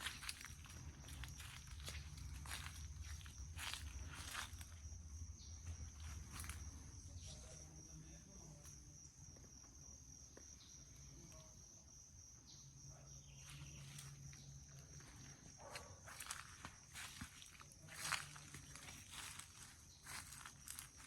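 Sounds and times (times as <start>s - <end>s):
soft rustles or footsteps: 0.0s - 4.8s, 14.9s - 21.0s
crickets chirping: 0.0s - 21.0s.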